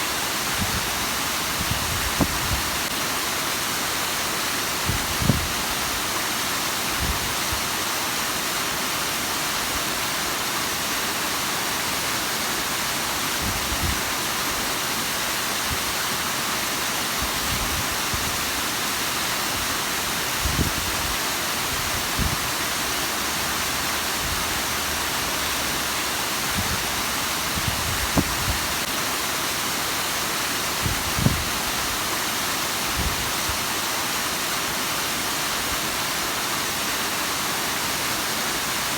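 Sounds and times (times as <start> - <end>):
waterfall rushing and splashing: 0.0 - 38.9.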